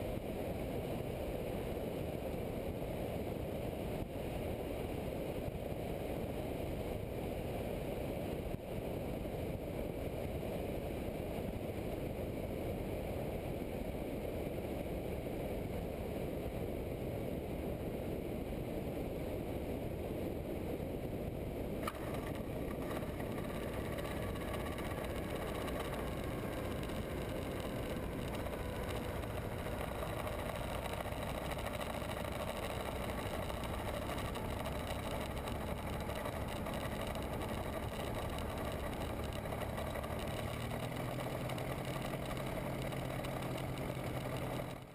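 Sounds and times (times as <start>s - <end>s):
rolling wheel whine: 0.0s - 44.9s
aircraft engine noise: 19.0s - 44.9s.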